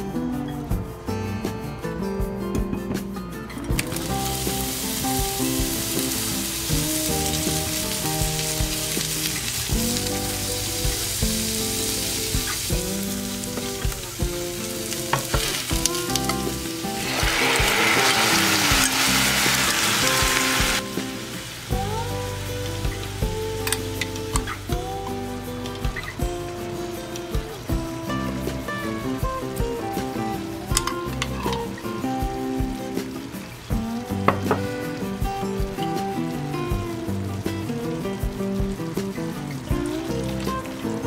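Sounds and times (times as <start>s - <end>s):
vegetables sizzling in hot oil: 3.8s - 24.7s.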